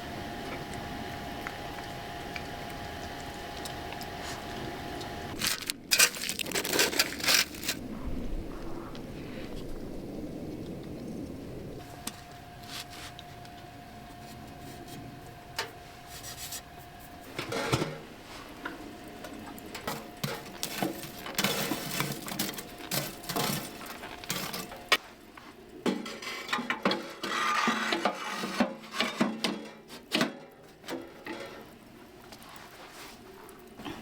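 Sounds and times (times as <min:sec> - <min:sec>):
faint steady hum: 0:00.0 - 0:34.0
objects rubbed and scraped: 0:05.3 - 0:07.8, 0:15.7 - 0:18.6, 0:19.8 - 0:25.1, 0:25.9 - 0:30.1.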